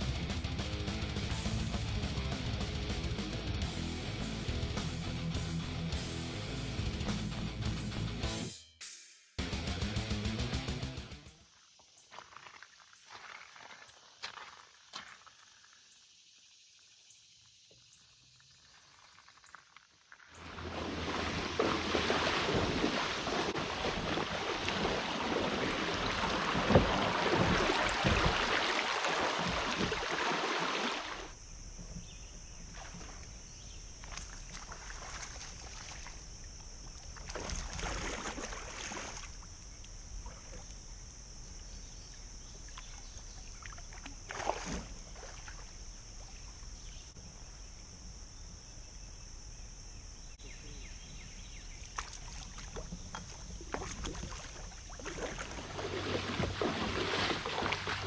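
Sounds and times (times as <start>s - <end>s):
water lapping around a kayak: 11.5s - 15.6s, 18.5s - 47.9s, 50.4s - 58.0s
water rushing in a creek: 11.5s - 15.6s, 20.4s - 31.4s, 32.6s - 40.9s, 42.6s - 46.8s, 51.8s - 58.0s
paddle strokes: 20.3s - 32.0s, 51.9s - 58.0s.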